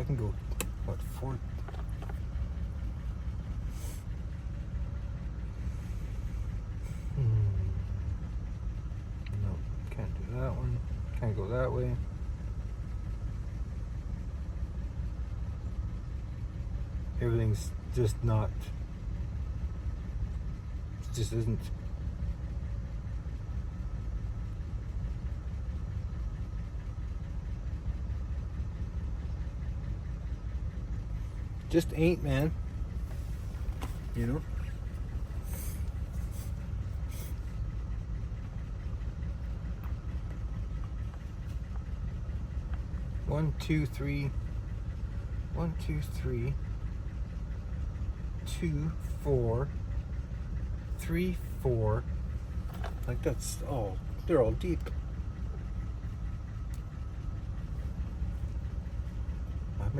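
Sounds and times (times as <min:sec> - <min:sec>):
engine idling: 0:00.0 - 0:59.9
steady low rumble: 0:00.0 - 0:59.9
person humming: 0:07.1 - 0:07.8.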